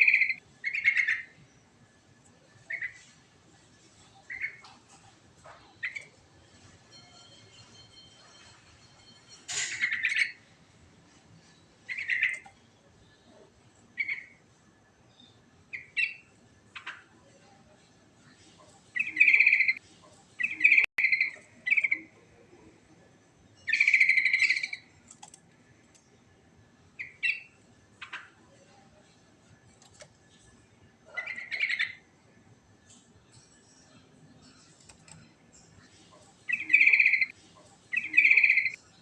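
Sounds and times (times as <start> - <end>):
bulbul singing: 0.0 - 1.4, 19.0 - 19.8, 23.6 - 24.9, 36.4 - 37.3, 37.9 - 38.8.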